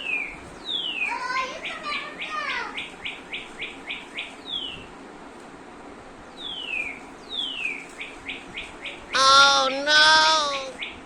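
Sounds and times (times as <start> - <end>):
toy bird chirping: 9.2 - 10.8.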